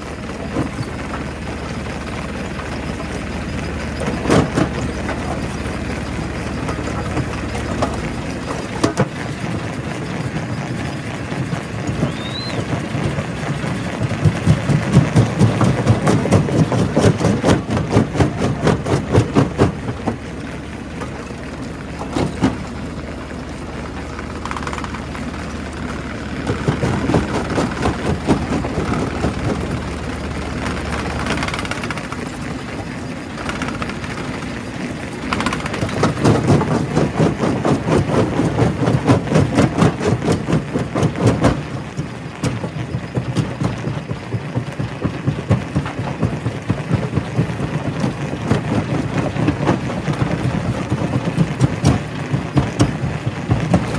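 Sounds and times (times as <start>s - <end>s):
rock crusher machinery running: 0.0s - 53.9s
steady low hum: 0.0s - 53.9s.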